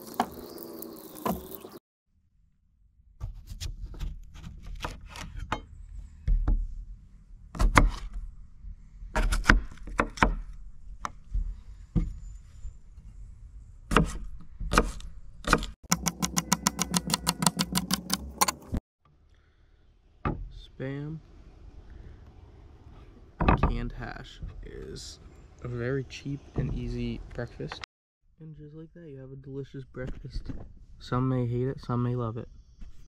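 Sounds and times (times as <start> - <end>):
knife chopping on wooden board: 13.9 - 18.6.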